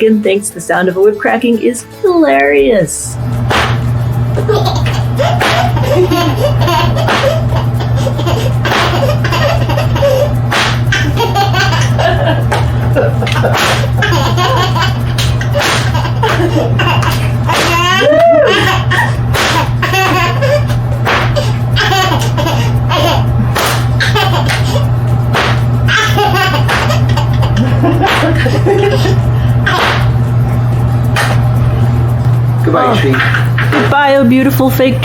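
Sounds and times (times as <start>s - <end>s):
whip cracking: 3.5s - 3.9s, 10.5s - 10.8s, 13.6s - 13.9s, 15.6s - 15.9s, 19.3s - 19.6s, 21.1s - 21.4s, 23.6s - 23.9s, 25.3s - 25.7s, 29.8s - 30.2s, 31.2s - 31.4s
baby laughing: 4.4s - 30.2s, 32.9s - 34.0s.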